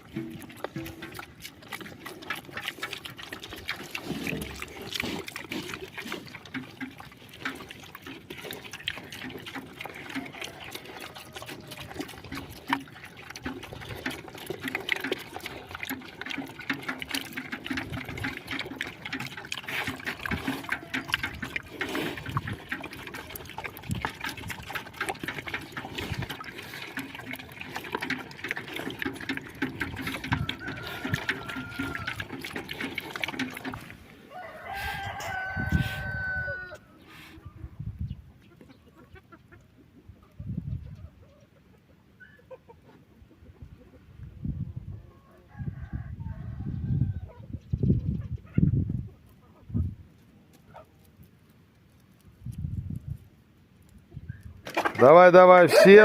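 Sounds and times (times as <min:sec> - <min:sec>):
water trickling and dripping: 0:00.0 - 0:34.1.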